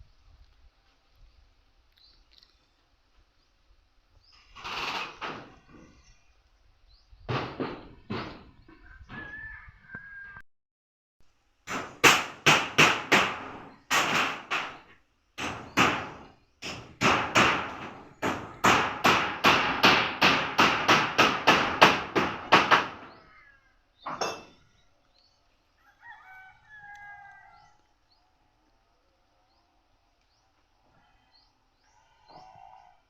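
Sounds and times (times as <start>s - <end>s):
rooster crowing faintly: 8.8s - 10.4s, 25.7s - 28.0s, 31.0s - 33.0s
hammer blows: 11.7s - 23.1s.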